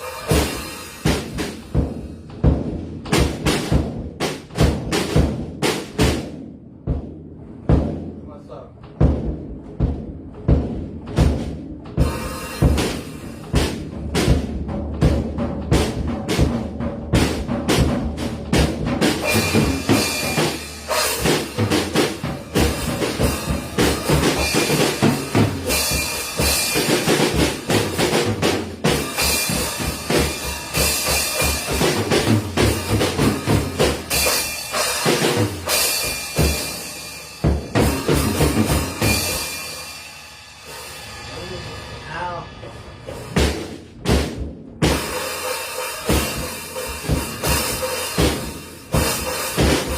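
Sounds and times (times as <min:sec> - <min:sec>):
cymbals crashing: 0:00.0 - 0:02.2, 0:19.2 - 0:43.9
rapid drum strikes: 0:00.0 - 0:49.9.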